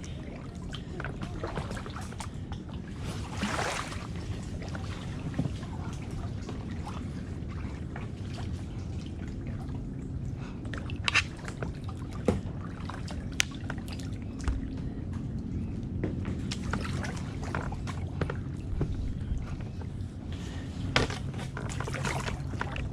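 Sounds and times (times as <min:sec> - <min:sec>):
paddle splashing and dripping water: 0:00.0 - 0:14.7, 0:21.0 - 0:22.9
steady low rumble: 0:00.0 - 0:22.9.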